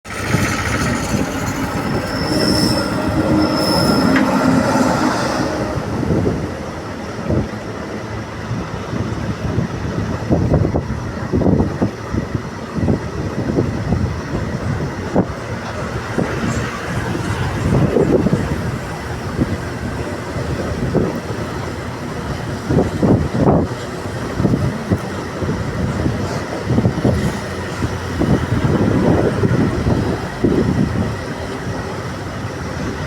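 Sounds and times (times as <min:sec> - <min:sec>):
train running on track: 0:00.0 - 0:33.0
wheel squeals: 0:00.1 - 0:06.5
wheels clacking over rail joints: 0:00.1 - 0:07.7.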